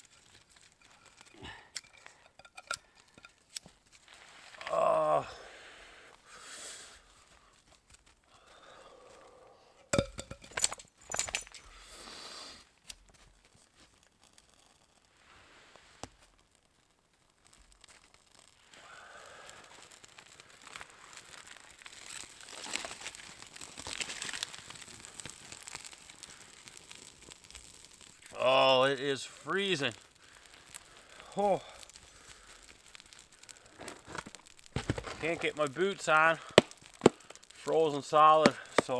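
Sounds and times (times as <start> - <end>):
fabric rustling and crinkling: 19.8 - 26.7, 31.8 - 38.9.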